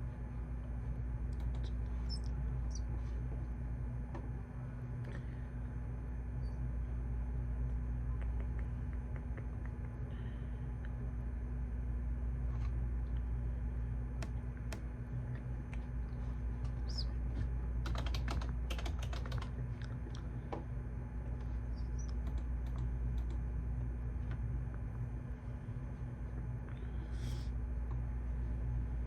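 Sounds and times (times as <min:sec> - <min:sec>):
low room hum: 0:00.0 - 0:29.0
computer keyboard typing: 0:17.8 - 0:19.6, 0:21.9 - 0:23.4.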